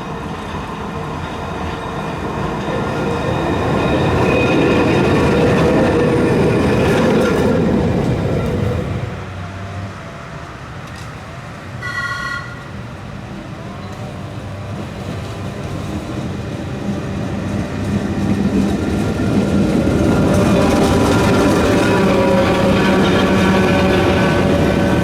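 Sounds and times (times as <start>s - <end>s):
tram rumbling: 0.0s - 25.0s
high-pitched warning signal: 11.8s - 12.8s.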